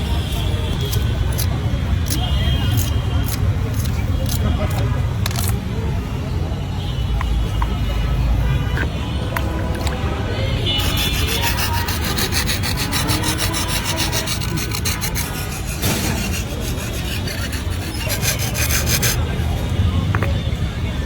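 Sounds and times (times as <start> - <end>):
rasping strokes of hand smoothing: 10.8 - 19.2.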